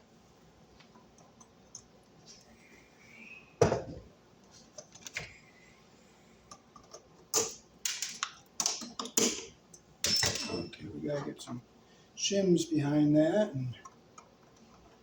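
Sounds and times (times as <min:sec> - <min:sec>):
hardware and tools clattering: 0:06.8 - 0:11.6.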